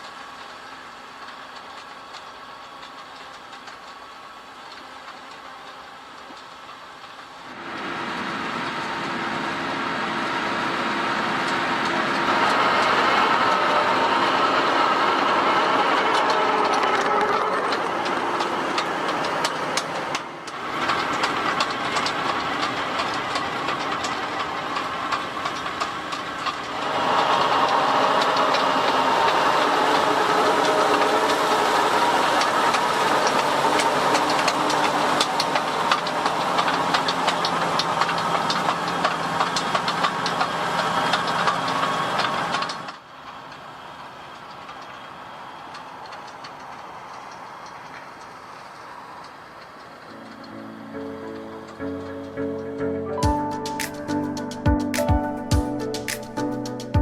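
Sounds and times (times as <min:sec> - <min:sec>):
tractor engine under load: 0:00.0 - 0:57.0
plough clicking and rattling: 0:11.4 - 0:43.6.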